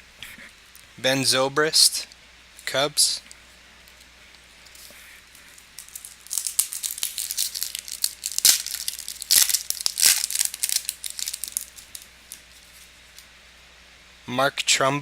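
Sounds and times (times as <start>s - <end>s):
foil wrapper crinkling: 4.8s - 13.3s.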